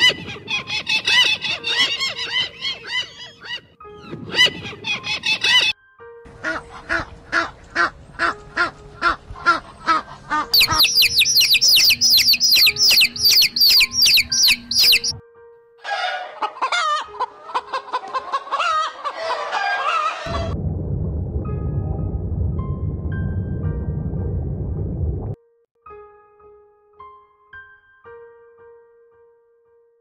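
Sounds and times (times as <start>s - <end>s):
bird calling: 0.0s - 3.7s, 6.5s - 15.2s
chickens clucking and squawking: 6.4s - 15.2s, 15.8s - 20.3s
baby chicks peeping: 9.8s - 15.2s.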